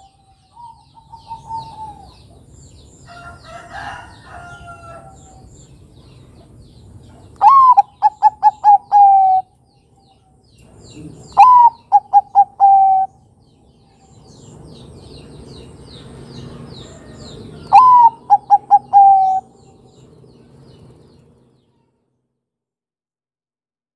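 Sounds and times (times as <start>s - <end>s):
dove cooing: 0.0s - 2.5s, 7.4s - 9.5s, 10.9s - 13.2s, 16.8s - 19.6s
small birds chirping: 0.0s - 21.9s.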